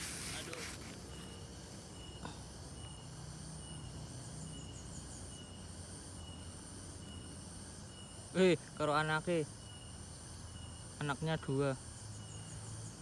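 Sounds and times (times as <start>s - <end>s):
faint high hiss: 0.0s - 2.5s
insects chirping: 0.0s - 13.0s.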